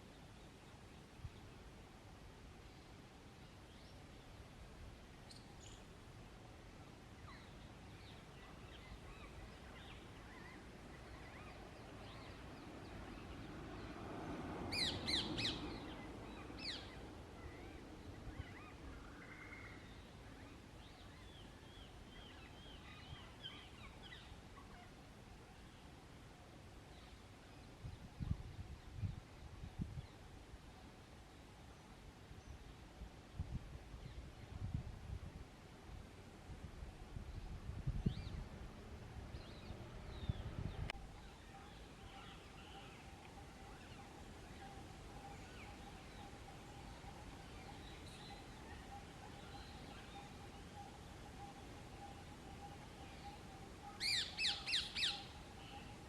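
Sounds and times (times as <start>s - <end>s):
faint steady tone: 0.0s - 56.0s
low outdoor background hiss: 0.0s - 56.0s
faint bird chirps: 41.0s - 56.0s.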